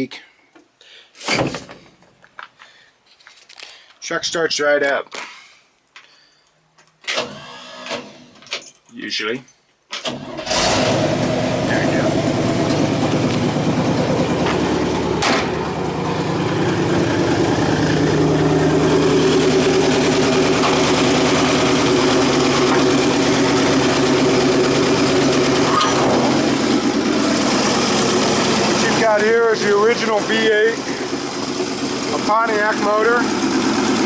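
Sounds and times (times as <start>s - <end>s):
truck engine idling: 10.5s - 34.0s.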